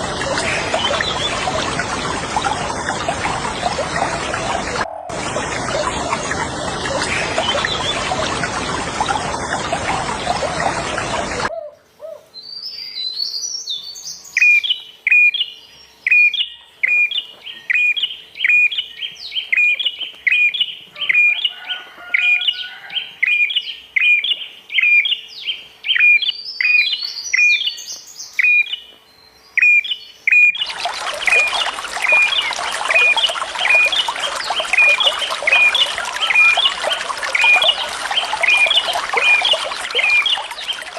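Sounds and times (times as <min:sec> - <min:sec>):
running water splashing: 0:00.0 - 0:11.5, 0:30.6 - 0:40.9
songbird chirping: 0:22.2 - 0:40.9.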